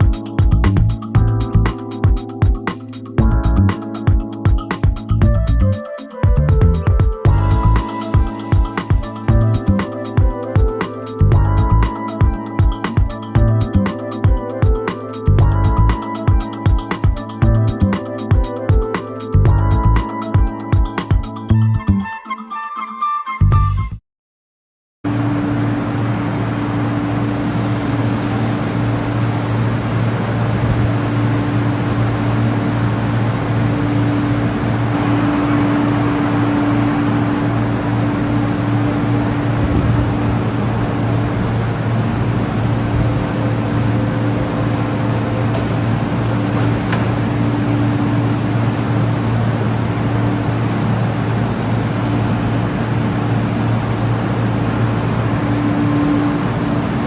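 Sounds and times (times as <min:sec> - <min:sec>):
noise hiss: 0:00.0 - 0:06.2, 0:25.1 - 0:57.0
electric train humming: 0:00.0 - 0:21.5, 0:25.1 - 0:57.0.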